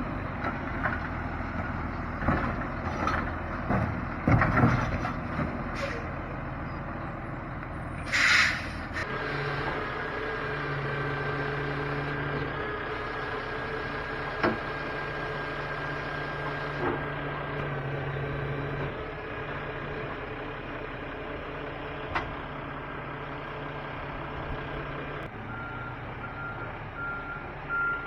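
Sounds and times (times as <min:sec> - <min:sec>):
truck engine idling: 0:00.0 - 0:28.0
hiss of air: 0:08.1 - 0:09.0.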